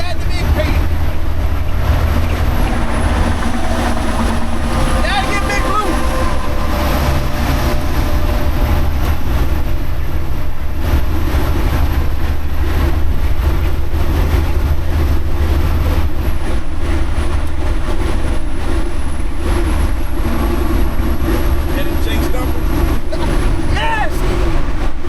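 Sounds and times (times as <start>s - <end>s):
truck diesel engine rumbling: 0.0s - 25.0s
faint high whine: 1.6s - 10.0s.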